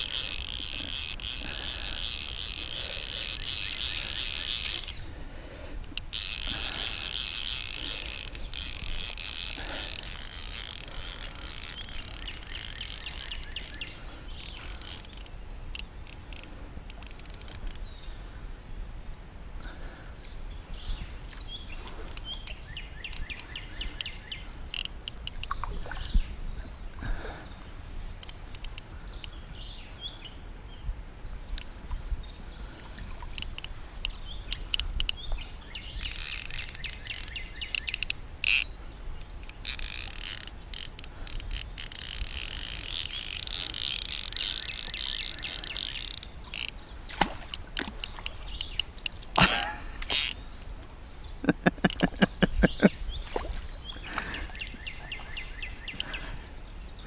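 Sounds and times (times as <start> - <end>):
frogs calling: 0.0 - 17.9, 31.6 - 56.4
birds calling: 0.0 - 18.5, 19.5 - 57.0
insects: 0.0 - 57.0.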